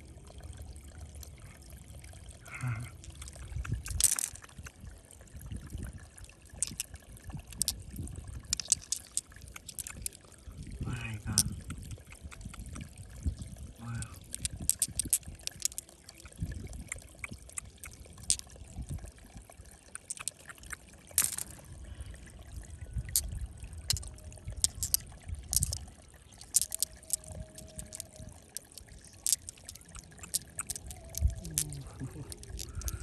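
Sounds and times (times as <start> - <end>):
water sloshing and trickling: 0.0 - 33.0
sharp clicks and knocks: 21.2 - 21.5, 23.9 - 25.8.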